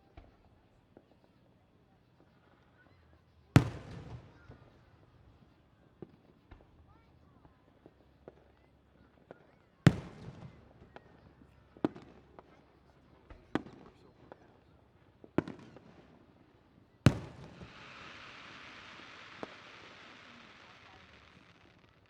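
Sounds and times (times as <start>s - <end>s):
small firework pops: 0.0s - 22.0s
firework booms: 3.6s - 4.6s, 17.1s - 22.0s
hissing crackle: 17.4s - 22.0s.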